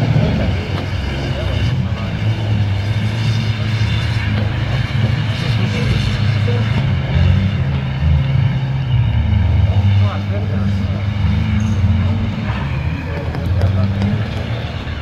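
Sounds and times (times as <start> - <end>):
car engine revving under load: 0.0 - 15.0.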